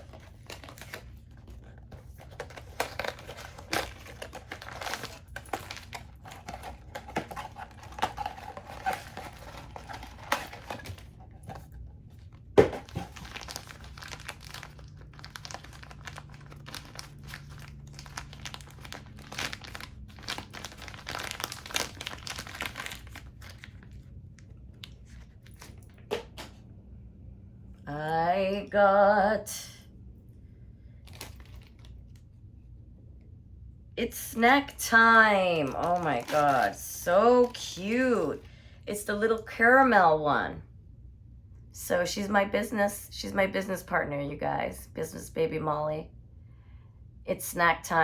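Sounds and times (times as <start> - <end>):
packaging tearing: 0.0 - 11.2, 12.6 - 24.0, 31.1 - 32.0, 35.6 - 36.8, 37.4 - 37.6
plastic wrapper crinkling: 0.0 - 26.1, 31.0 - 32.2, 35.5 - 37.9.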